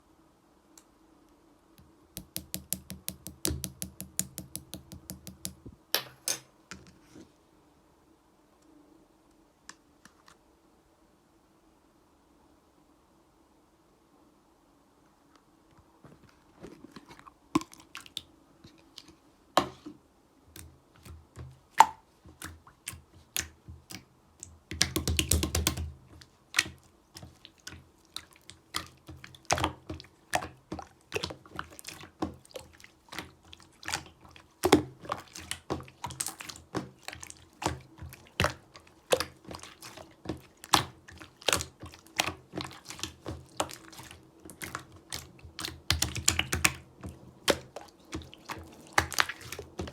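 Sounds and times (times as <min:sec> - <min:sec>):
slime squelching and popping: 0:02.2 - 0:05.6, 0:20.6 - 0:49.9.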